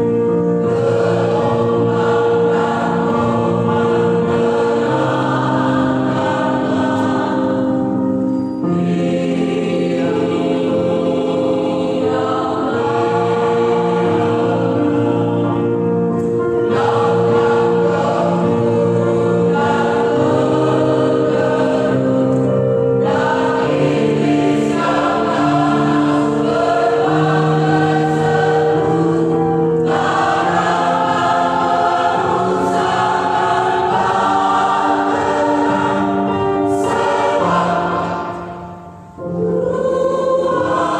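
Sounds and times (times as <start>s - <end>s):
church choir singing: 0.0s - 40.9s.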